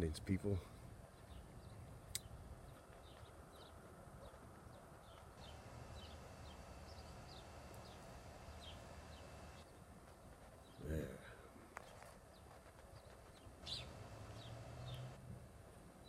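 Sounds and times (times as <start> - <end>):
small birds chirping: 0.1 - 15.2.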